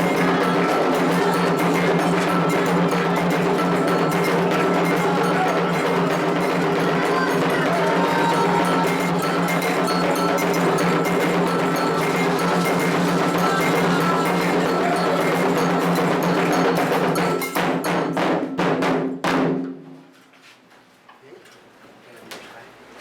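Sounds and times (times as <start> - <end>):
ringing metal bell: 0.0 - 18.2
hand drums: 0.0 - 19.8.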